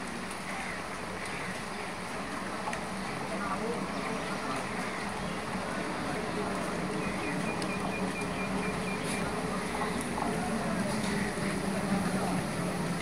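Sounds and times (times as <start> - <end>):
train humming: 6.4 - 13.0.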